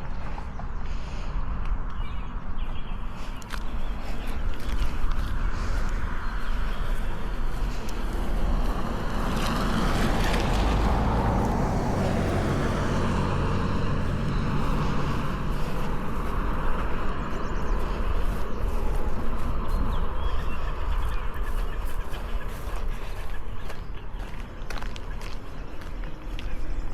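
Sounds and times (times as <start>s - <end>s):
steady low rumble: 0.0s - 26.9s
car passing: 3.9s - 26.9s.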